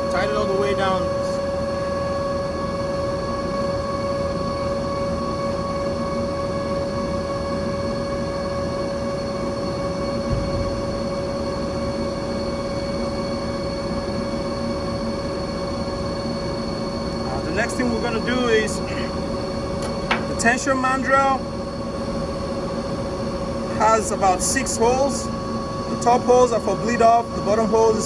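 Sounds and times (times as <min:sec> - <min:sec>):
machinery drone with high whine: 0:00.0 - 0:28.0
low thump: 0:10.2 - 0:11.1.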